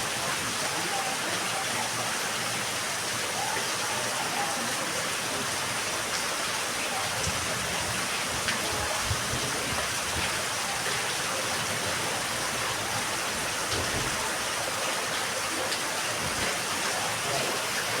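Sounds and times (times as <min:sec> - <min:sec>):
steady rain hiss: 0:00.0 - 0:18.0
raindrop ticks: 0:12.5 - 0:17.9.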